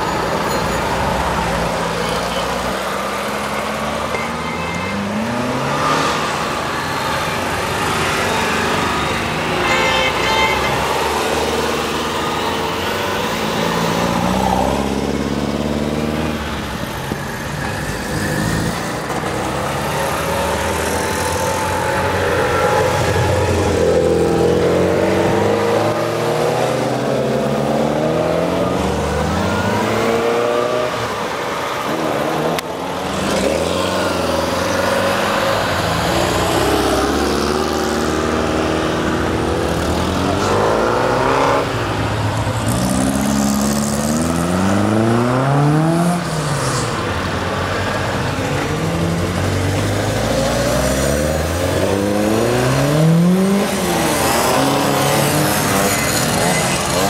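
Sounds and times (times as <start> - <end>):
small car engines revving: 17.6 - 57.0.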